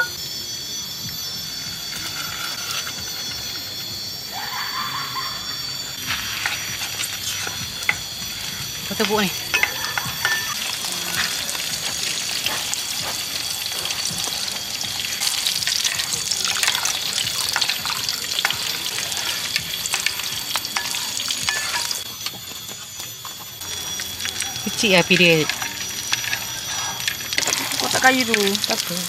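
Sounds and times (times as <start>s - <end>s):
food sizzling in a pan: 0.0s - 29.0s
utensil scraping a pan: 6.0s - 22.0s, 23.8s - 28.8s.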